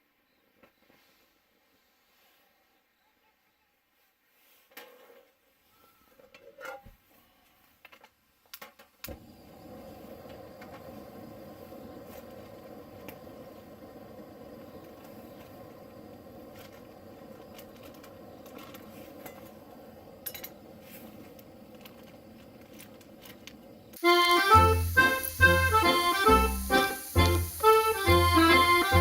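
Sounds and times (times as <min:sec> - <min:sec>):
steady low hum: 0:09.2 - 0:29.0
accordion music: 0:24.0 - 0:29.0.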